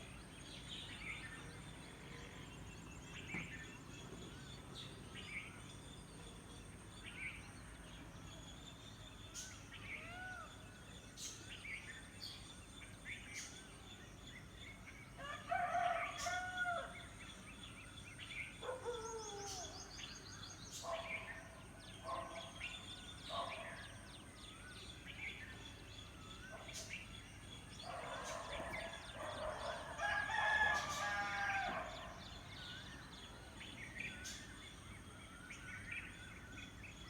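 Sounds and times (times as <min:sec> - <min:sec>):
rural background: 0:00.0 - 0:37.0
small birds chirping: 0:24.9 - 0:35.1
rooster crowing: 0:30.0 - 0:32.0.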